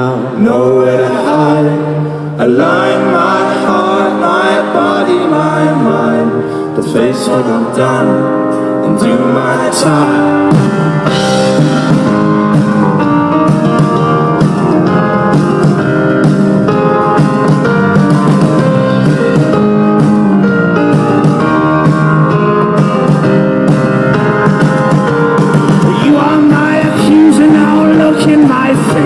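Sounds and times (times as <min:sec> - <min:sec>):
guitar: 0:00.0 - 0:29.0
steady drum beat: 0:10.5 - 0:29.0.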